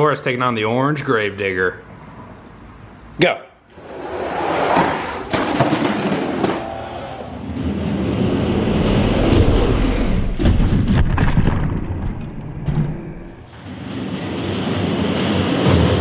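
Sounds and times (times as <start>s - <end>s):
toy wheels rumbling on track: 3.8s - 7.1s.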